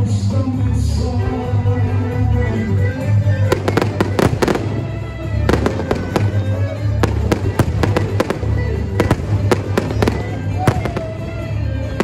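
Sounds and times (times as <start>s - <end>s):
music with heavy bass: 0.0s - 12.0s
fireworks bangs and crackles: 3.4s - 12.0s.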